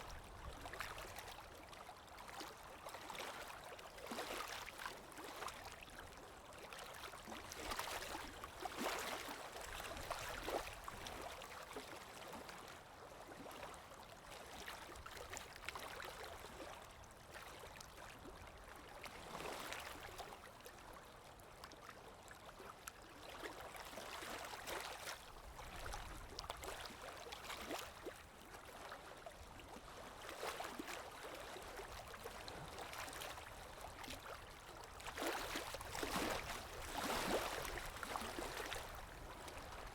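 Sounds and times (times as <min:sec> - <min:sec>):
waves sloshing and splashing: 0:00.0 - 0:20.8, 0:21.6 - 0:39.9.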